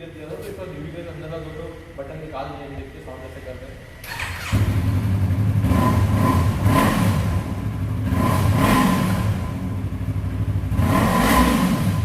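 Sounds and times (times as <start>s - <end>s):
motorcycle engine idling and revving: 3.9s - 12.0s.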